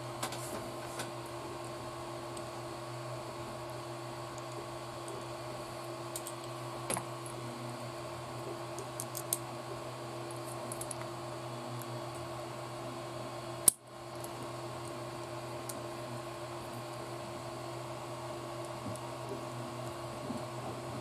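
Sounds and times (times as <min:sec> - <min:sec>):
background hum: 0:00.0 - 0:21.0.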